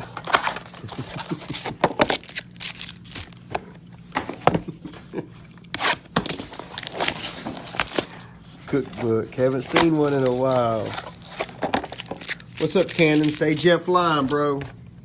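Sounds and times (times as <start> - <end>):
packaging tearing and crinkling: 0.2 - 3.5, 5.7 - 8.2, 9.6 - 14.5.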